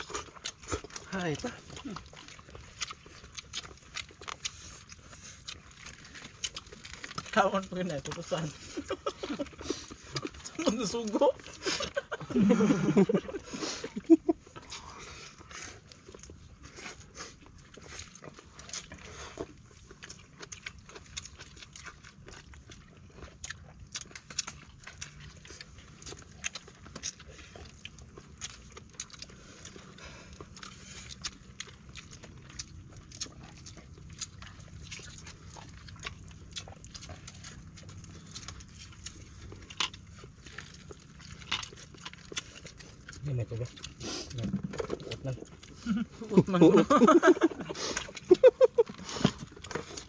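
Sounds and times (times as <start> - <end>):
chewing and lip-smacking: 0.0 - 50.0
low steady rumble: 0.0 - 50.0.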